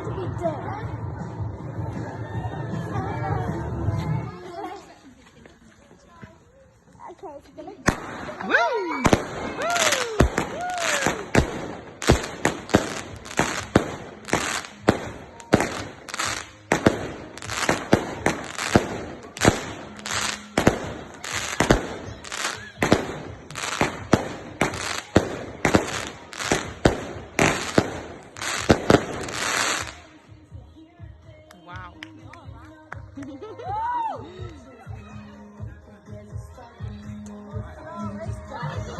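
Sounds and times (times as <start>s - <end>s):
fireworks bangs: 7.9s - 30.0s.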